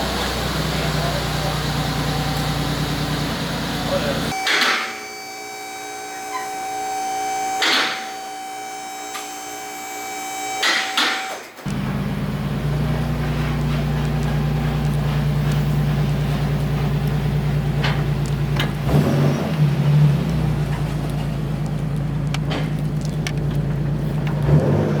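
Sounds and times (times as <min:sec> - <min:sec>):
road noise: 0:00.0 - 0:04.4, 0:11.0 - 0:25.0
car engine drone: 0:00.0 - 0:25.0
high electrical hum: 0:04.3 - 0:18.8.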